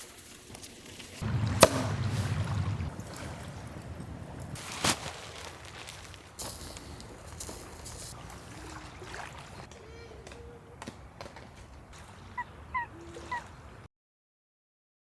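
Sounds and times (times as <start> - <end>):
faint outdoor ambience: 0.0 - 13.9
short bird calls: 8.5 - 10.9, 11.9 - 13.9.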